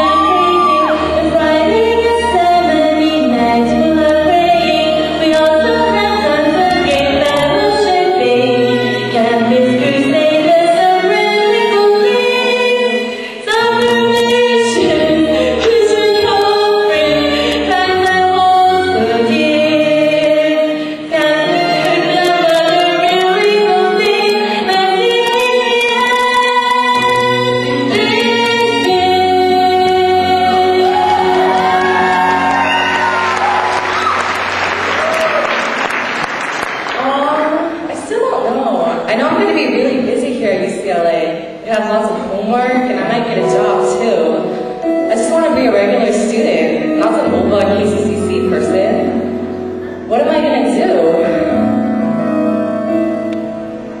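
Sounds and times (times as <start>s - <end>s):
choir-like group singing: 0.0s - 33.3s.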